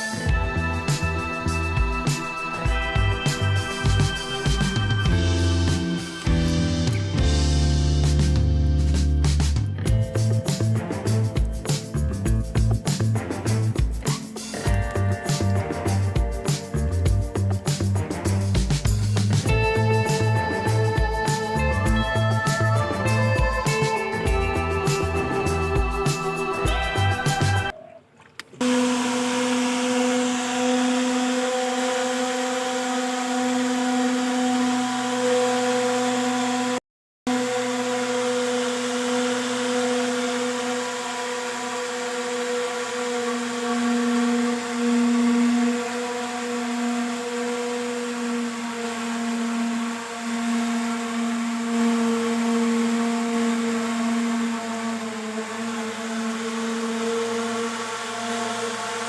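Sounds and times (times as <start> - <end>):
small boat motor whining: 0.0 - 8.6, 12.8 - 59.0.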